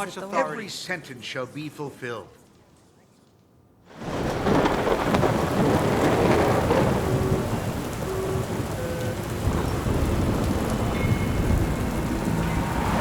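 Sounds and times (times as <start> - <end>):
heavy rain: 3.9 - 13.0
thunder rumbling: 3.9 - 13.0.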